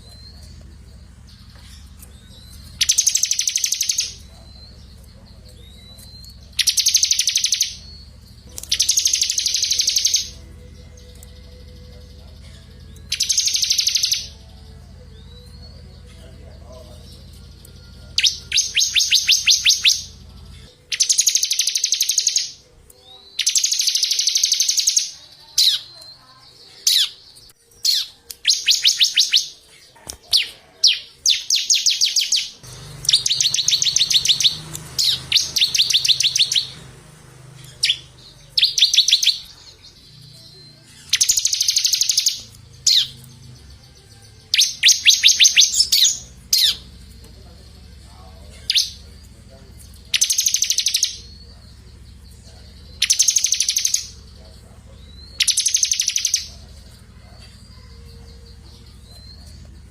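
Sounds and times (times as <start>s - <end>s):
songbirds trilling: 0.0s - 59.9s.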